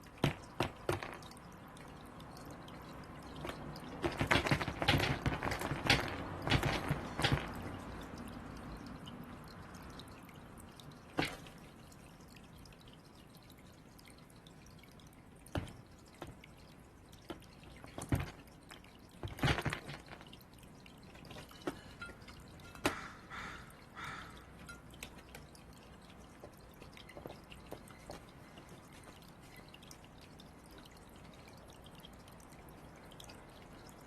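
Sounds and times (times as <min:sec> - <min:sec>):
faint steady background noise: 0:00.0 - 0:34.0
sharp taps and knocks: 0:00.1 - 0:01.4, 0:03.3 - 0:08.1, 0:15.5 - 0:16.4, 0:21.2 - 0:23.2.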